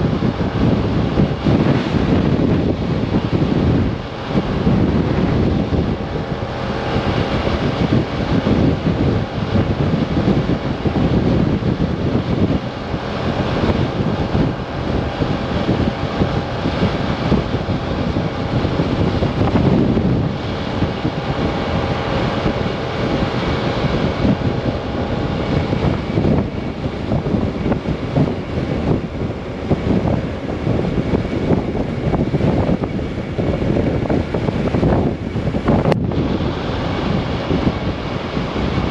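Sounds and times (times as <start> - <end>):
gusty wind buffeting microphone: 0.0 - 38.9
scooter engine and road noise: 0.0 - 38.9.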